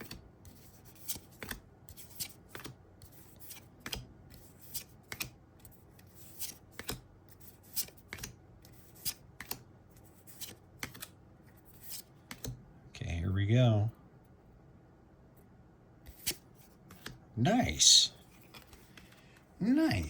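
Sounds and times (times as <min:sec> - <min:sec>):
trading cards snapping and sliding: 0:00.9 - 0:05.4, 0:06.0 - 0:07.0, 0:07.6 - 0:09.6, 0:10.3 - 0:12.6, 0:16.0 - 0:17.2, 0:18.3 - 0:19.2.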